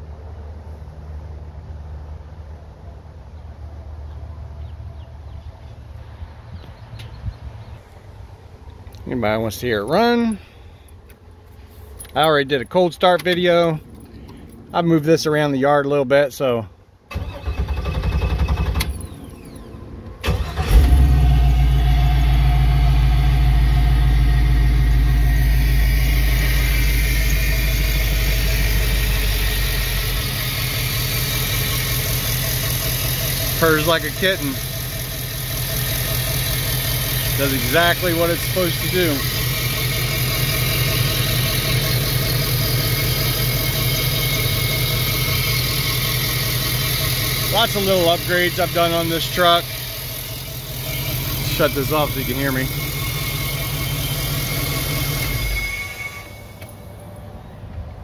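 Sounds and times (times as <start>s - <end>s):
car engine starting and idling: 0.0s - 58.0s
starter motor cranking: 17.1s - 21.4s, 24.8s - 56.6s.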